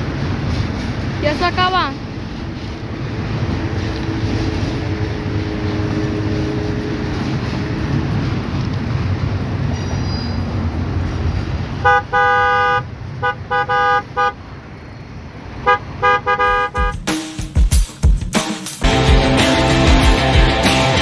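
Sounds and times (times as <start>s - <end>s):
passing train rumble: 0.0s - 21.0s
locomotive air horn blasts: 11.8s - 14.5s, 15.6s - 17.1s.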